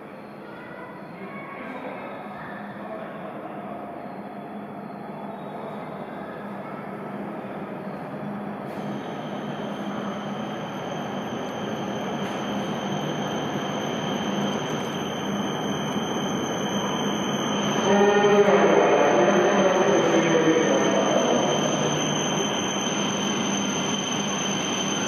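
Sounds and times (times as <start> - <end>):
train running noise: 0.0 - 25.0
steady high whine: 9.3 - 25.0.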